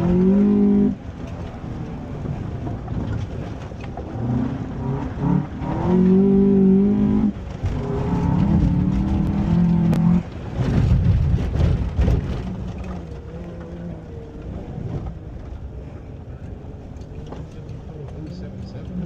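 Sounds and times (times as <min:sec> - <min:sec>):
car engine running: 0:00.0 - 0:19.0
rough crackling noise: 0:07.1 - 0:19.0.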